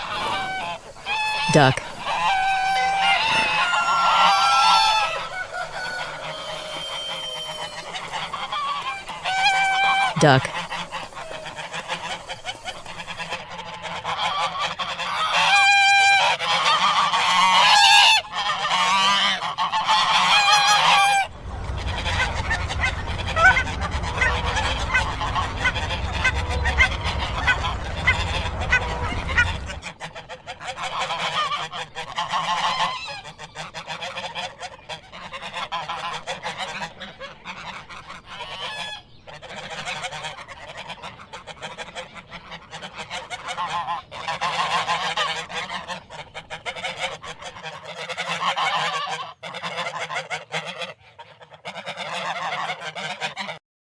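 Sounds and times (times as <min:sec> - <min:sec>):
ducks quacking: 0:00.0 - 0:53.6
low steady rumble: 0:21.2 - 0:29.9.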